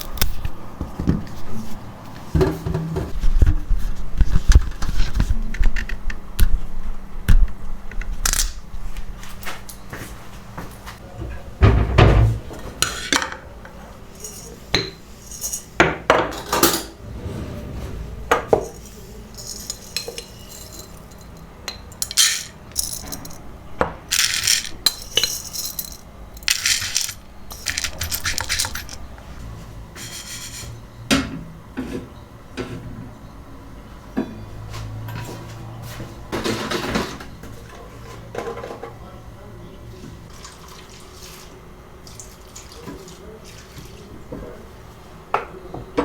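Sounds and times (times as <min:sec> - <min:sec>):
dishes and utensils clinking: 0:14.1 - 0:17.0, 0:18.3 - 0:23.4, 0:24.1 - 0:29.0
dishes scraping: 0:14.2 - 0:23.4, 0:24.1 - 0:29.1.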